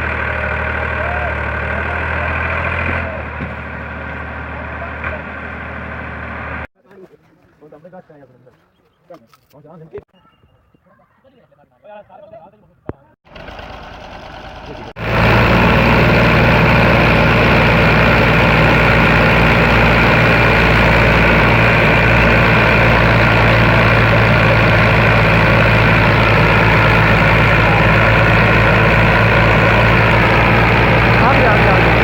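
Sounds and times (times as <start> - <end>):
tractor diesel engine running: 0.0 - 6.7, 13.3 - 32.0.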